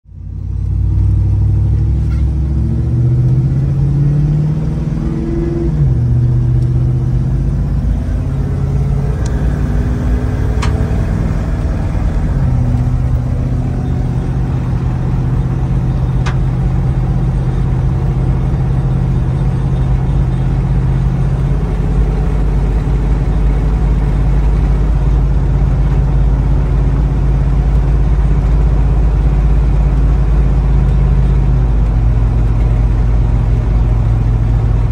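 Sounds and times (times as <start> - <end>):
car engine drone: 0.1 - 34.9.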